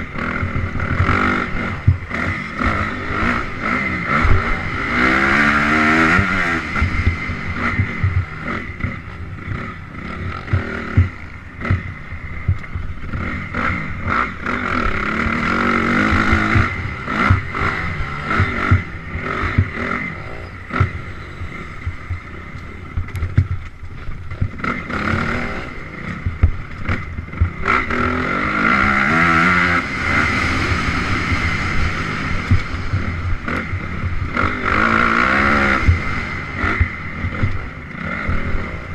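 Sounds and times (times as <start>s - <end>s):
dirt bike engine revving: 0.0s - 38.9s
bike knocks and clatter: 22.9s - 24.7s.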